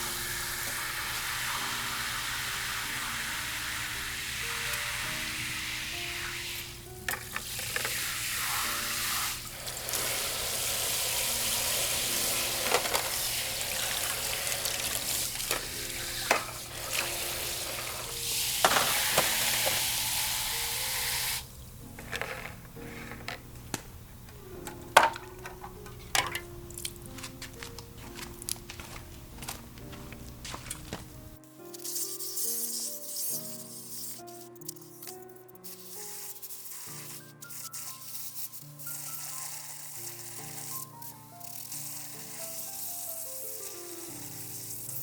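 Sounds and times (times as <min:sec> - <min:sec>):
food sizzling on a grill: 0:00.0 - 0:21.5, 0:35.6 - 0:45.0
background music: 0:00.0 - 0:45.0.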